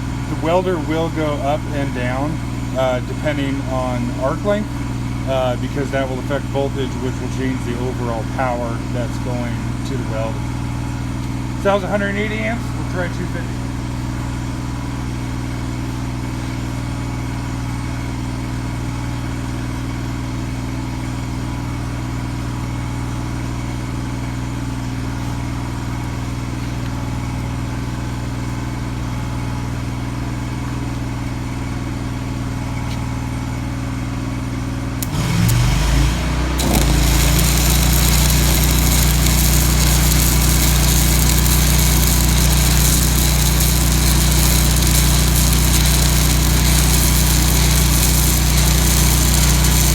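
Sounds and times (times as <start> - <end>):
welder engine running: 35.0 - 49.9
welding arc crackling hiss: 35.0 - 49.9.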